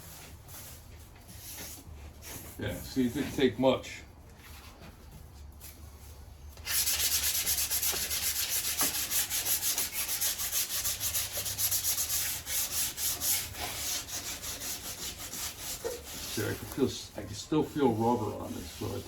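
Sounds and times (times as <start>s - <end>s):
sandpaper rubbing on steel panel: 6.6s - 19.0s.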